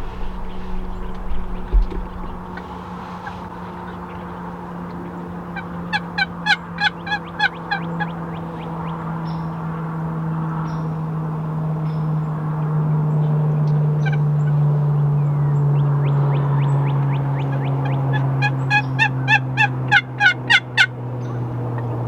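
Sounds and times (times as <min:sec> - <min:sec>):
steady low hum: 0:00.0 - 0:22.0
wild turkey yelping: 0:05.0 - 0:09.6, 0:14.0 - 0:14.6, 0:16.1 - 0:22.0.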